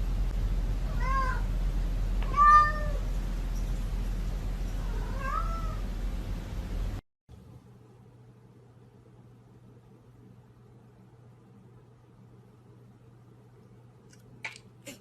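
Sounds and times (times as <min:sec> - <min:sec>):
low background hum: 0:00.0 - 0:15.0
cat meowing: 0:00.9 - 0:01.5, 0:02.2 - 0:03.0, 0:04.8 - 0:05.8.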